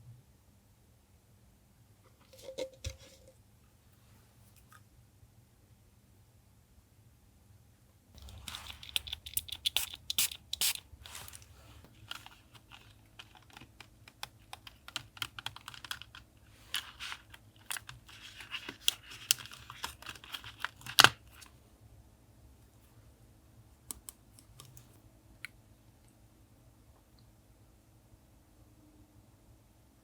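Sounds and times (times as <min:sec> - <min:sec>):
paper rustling and ticking: 0:08.2 - 0:21.4.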